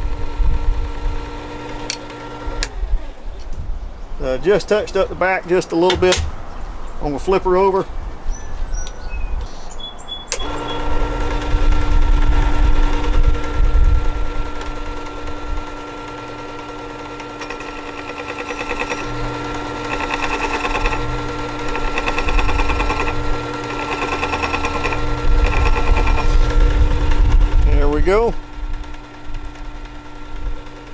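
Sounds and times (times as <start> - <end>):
powered sharpener motor hum: 0.0 - 3.3, 4.0 - 7.0, 7.8 - 27.7
chisel grinding on abrasive disc: 10.3 - 13.5, 17.0 - 27.4.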